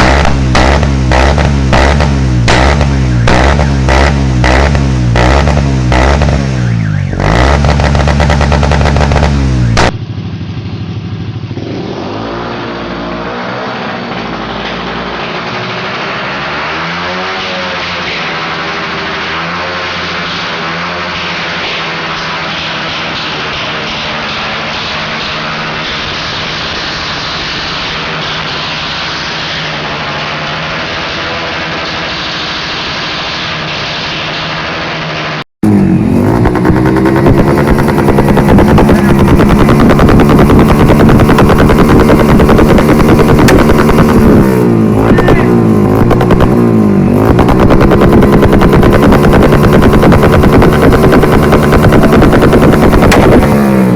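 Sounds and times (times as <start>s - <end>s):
louder motorcycle engine revving: 0.0s - 53.9s
small motorcycle engine revving: 0.0s - 53.9s.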